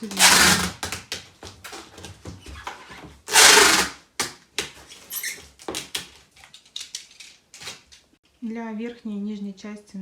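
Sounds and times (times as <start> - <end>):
tape ripping off roll: 0.0 - 6.1.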